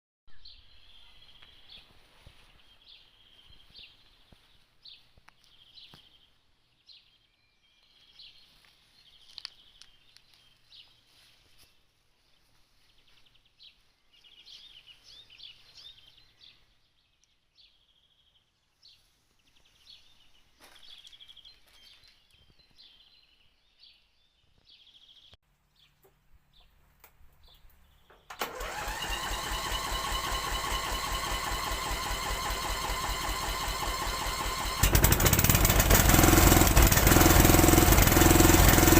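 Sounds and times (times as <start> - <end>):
birds chirping: 0.3 - 38.9
lawn tractor engine starting: 28.2 - 38.9.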